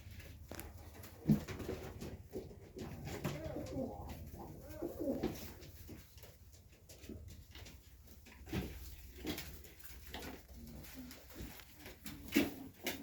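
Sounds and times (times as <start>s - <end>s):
pigeons cooing: 2.7s - 6.0s.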